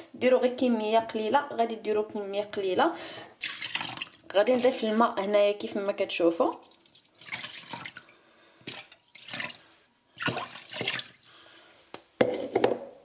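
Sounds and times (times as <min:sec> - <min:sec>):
water splashing into juice: 0:03.4 - 0:04.9, 0:06.5 - 0:11.4.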